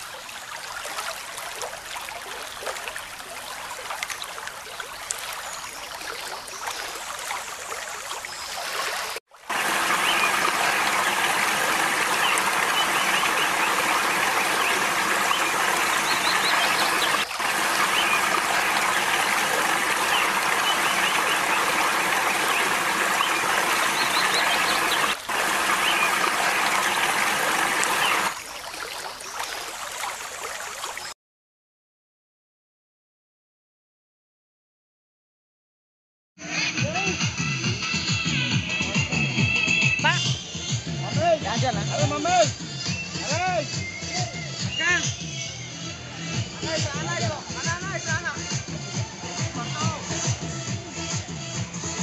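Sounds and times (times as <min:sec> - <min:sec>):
rushing water: 0:00.0 - 0:31.2.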